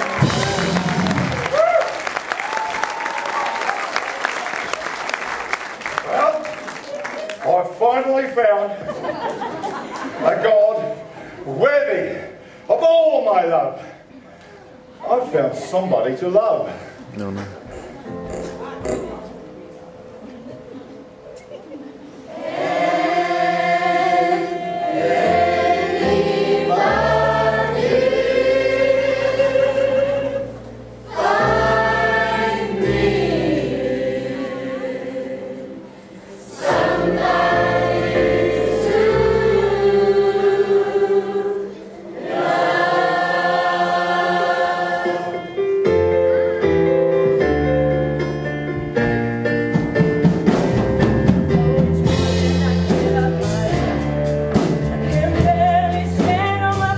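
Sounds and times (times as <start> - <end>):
choir singing gospel song: 0.0 - 1.5, 22.2 - 46.1, 51.4 - 56.9
instrumental accompaniment: 17.4 - 20.4, 22.4 - 56.9.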